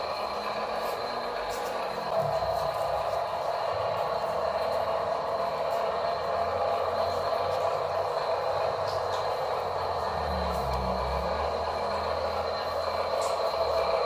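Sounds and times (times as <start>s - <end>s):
toy truck motor gear whine: 0.0s - 14.0s.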